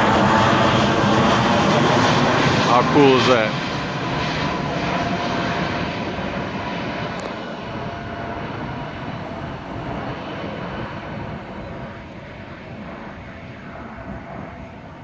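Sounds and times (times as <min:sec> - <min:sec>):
airplane engines rushing: 0:00.0 - 0:15.0.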